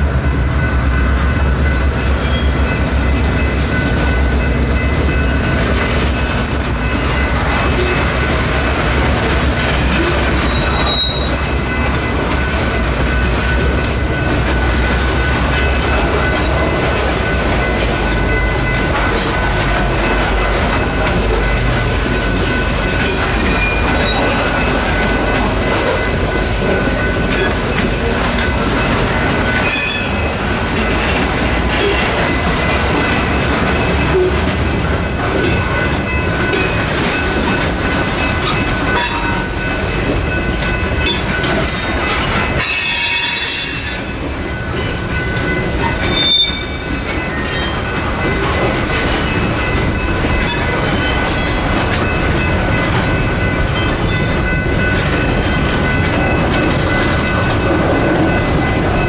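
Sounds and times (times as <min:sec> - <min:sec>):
train rumbling: 0:00.0 - 0:59.0
level crossing bells ringing: 0:00.6 - 0:59.0
high wheel squeal: 0:06.0 - 0:07.3, 0:10.4 - 0:11.5, 0:46.1 - 0:46.8.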